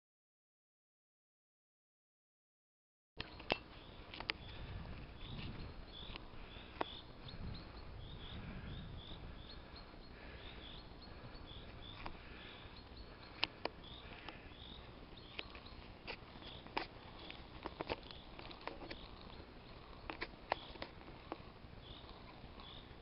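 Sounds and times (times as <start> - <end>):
faint high bird chirps: 3.2 - 23.0
sharp clicks: 15.3 - 22.8.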